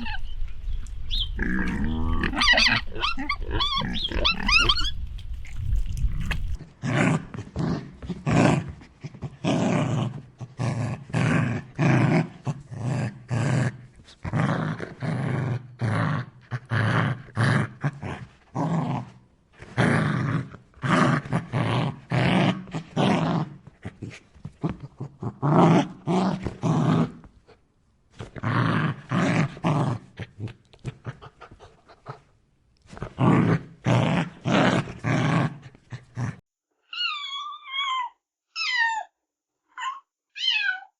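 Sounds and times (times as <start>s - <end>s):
dog barking and growling: 1.3s - 5.0s, 6.3s - 27.5s, 28.1s - 32.3s, 32.9s - 36.4s.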